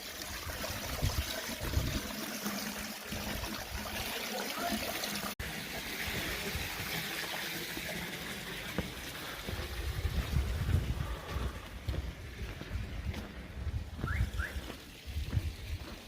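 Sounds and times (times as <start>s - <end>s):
water trickling: 0.0s - 16.0s.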